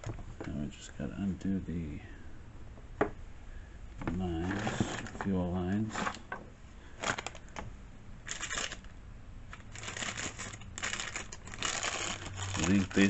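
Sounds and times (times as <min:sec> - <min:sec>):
faint steady hum: 0:00.0 - 0:13.0
scratchy rustling: 0:09.7 - 0:13.0.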